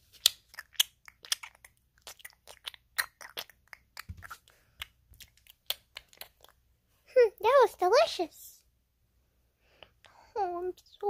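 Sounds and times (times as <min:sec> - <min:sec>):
person making crunchy chewing noises: 0:00.0 - 0:06.7.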